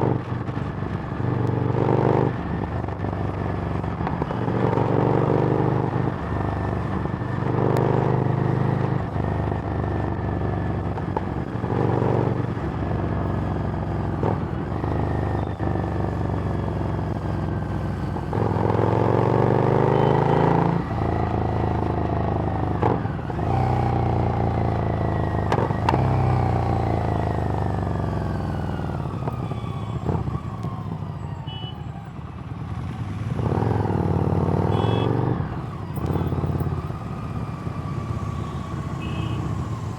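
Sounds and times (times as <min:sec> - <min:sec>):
motorcycle engine revving: 0:13.4 - 0:31.0, 0:32.3 - 0:39.9.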